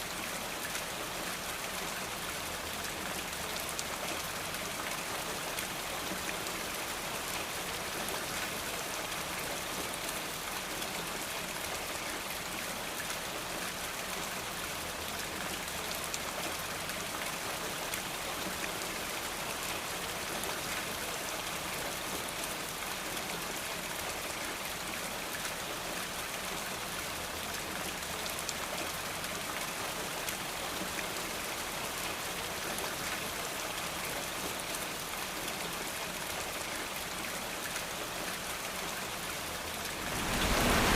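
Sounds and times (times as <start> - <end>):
steady rainfall: 0.0 - 40.9.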